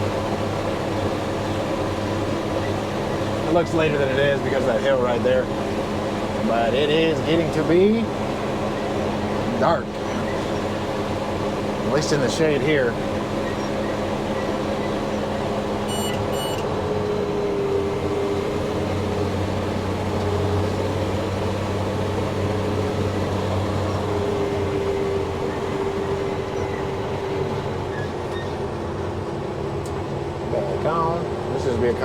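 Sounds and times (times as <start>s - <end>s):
diesel engine drone: 0.0s - 32.0s
short electronic beeps: 15.9s - 16.7s.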